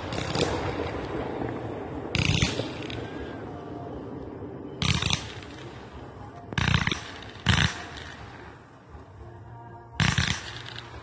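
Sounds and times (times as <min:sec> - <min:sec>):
fireworks bangs: 0:00.0 - 0:08.8
low rumble: 0:00.0 - 0:11.0.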